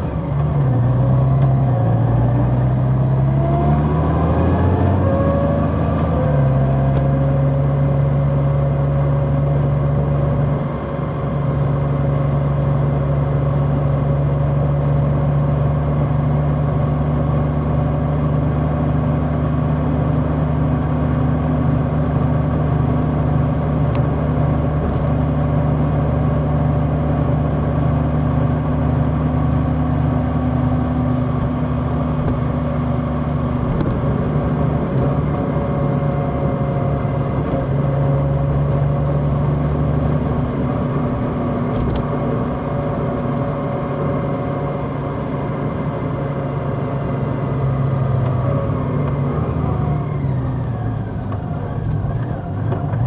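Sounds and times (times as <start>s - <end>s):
motorcycle engine with gear changes: 27.3s - 53.0s.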